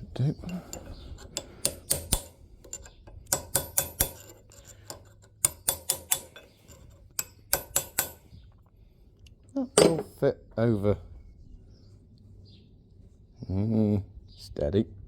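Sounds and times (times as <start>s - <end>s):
metal-on-metal taps and clinks: 0.4s - 8.4s, 9.8s - 10.2s.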